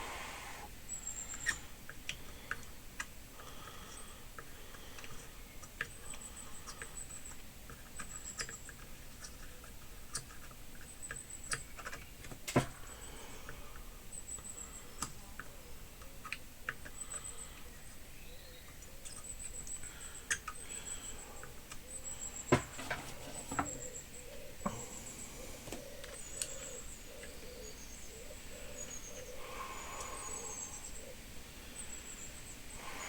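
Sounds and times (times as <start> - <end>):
small clicks and taps: 4.4 - 12.7.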